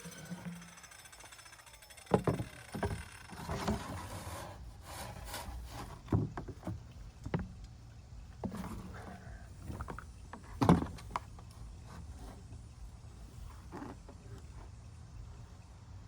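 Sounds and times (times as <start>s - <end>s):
wooden knocks: 2.1s - 3.9s
plywood scraping and sliding: 2.2s - 6.9s, 8.4s - 12.7s.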